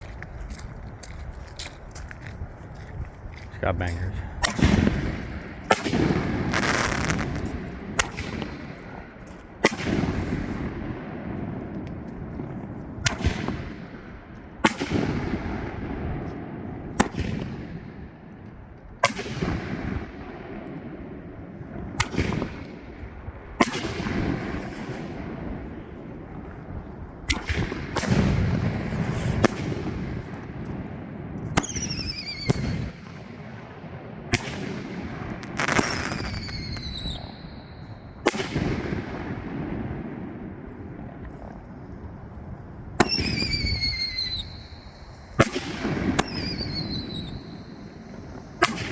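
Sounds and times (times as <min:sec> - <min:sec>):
firework bangs echoing: 0:03.7 - 0:18.3, 0:19.0 - 0:26.6, 0:27.3 - 0:41.2, 0:43.0 - 0:48.9
falling firework whistles: 0:05.8 - 0:08.6, 0:31.6 - 0:33.1, 0:35.4 - 0:38.6, 0:43.0 - 0:48.9.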